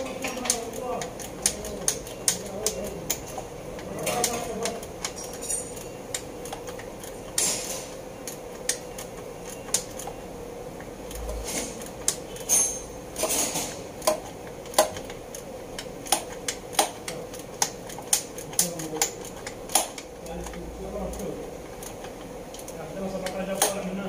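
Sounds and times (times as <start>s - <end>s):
metal tools clinking and scraping: 5.0s - 6.0s, 11.4s - 13.8s.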